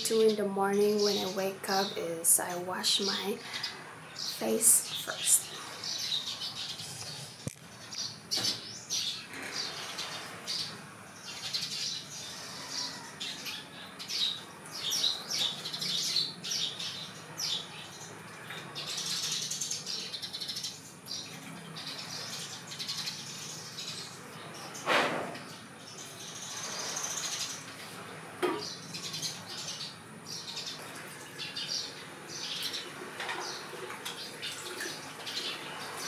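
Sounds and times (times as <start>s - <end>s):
small birds chirping and squawking: 0.0s - 36.0s.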